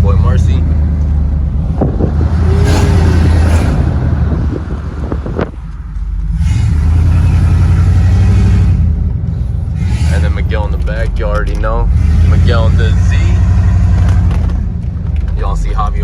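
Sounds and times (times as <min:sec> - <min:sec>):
truck engine droning inside cab: 0:00.0 - 0:16.0.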